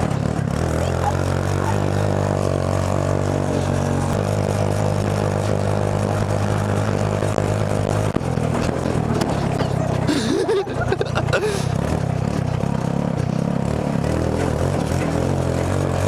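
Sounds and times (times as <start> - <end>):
go-kart engine running: 0.0 - 16.0.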